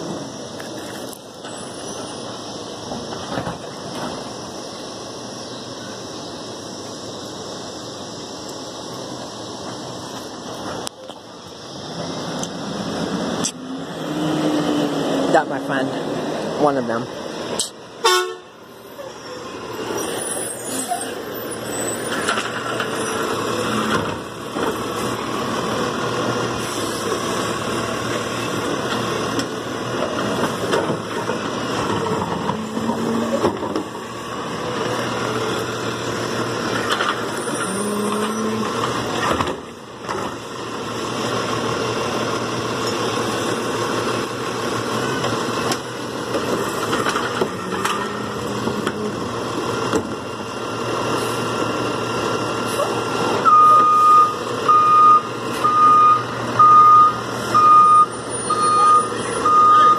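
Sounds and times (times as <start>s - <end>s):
garbage truck engine running: 18.6s - 59.9s.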